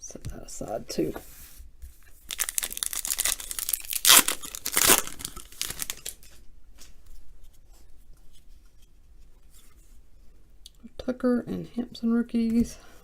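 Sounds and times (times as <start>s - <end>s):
wrapper tearing and crinkling: 2.2s - 6.3s.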